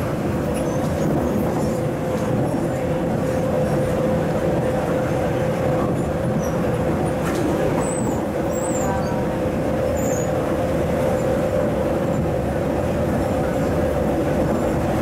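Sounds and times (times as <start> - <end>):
electric train rumble: 0.0 - 15.0
steady train whine: 0.0 - 15.0.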